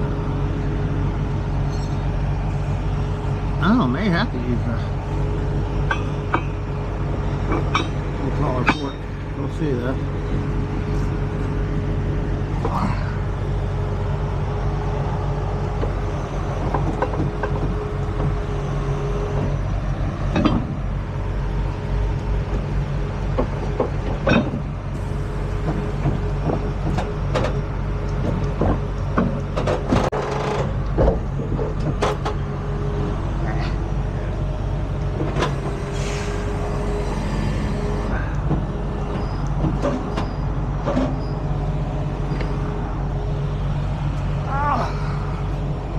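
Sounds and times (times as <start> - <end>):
diesel truck engine idling: 0.0 - 45.9
metal clanks and knocks: 5.8 - 9.8, 16.6 - 18.5, 20.2 - 20.9, 22.4 - 24.8, 25.6 - 32.5, 38.2 - 42.7.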